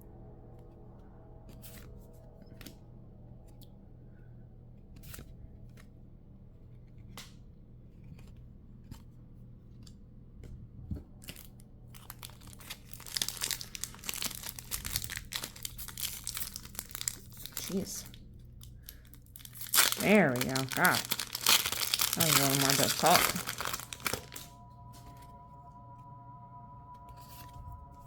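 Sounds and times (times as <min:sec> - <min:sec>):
low steady hum: 0:00.0 - 0:28.0
foil wrapper crinkling and tearing: 0:11.2 - 0:24.6.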